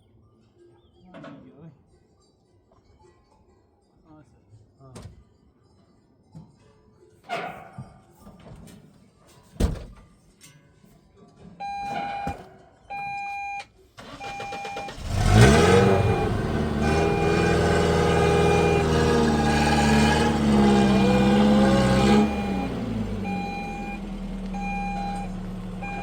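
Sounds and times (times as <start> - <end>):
long electronic beeps: 14.2 - 26.0
vehicle engine running: 14.8 - 26.0
short repeating beeps: 21.0 - 24.0, 24.6 - 26.0.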